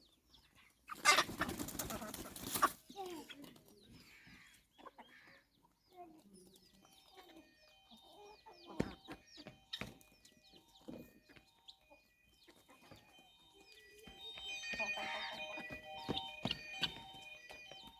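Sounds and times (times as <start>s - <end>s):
chickens clucking: 0.0s - 17.9s
high chirps: 6.9s - 17.9s.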